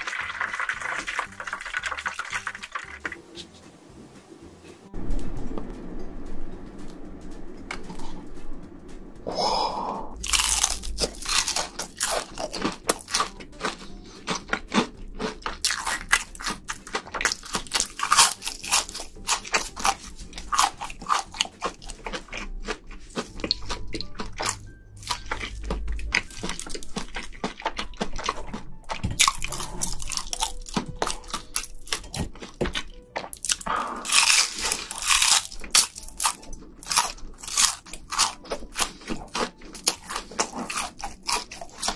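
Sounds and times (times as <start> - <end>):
crunchy food being chewed: 10.2 - 41.9.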